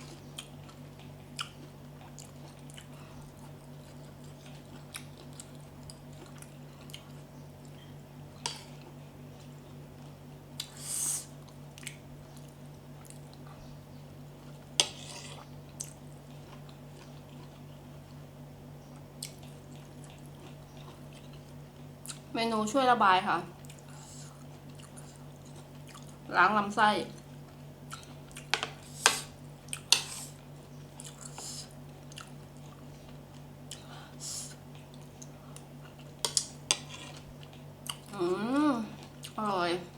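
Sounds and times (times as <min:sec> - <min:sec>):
person chewing: 0:00.0 - 0:13.7, 0:14.4 - 0:18.2, 0:18.9 - 0:22.3, 0:23.6 - 0:26.3, 0:27.2 - 0:38.2
steady low hum: 0:00.0 - 0:39.9
short hissing slurp: 0:10.7 - 0:11.3.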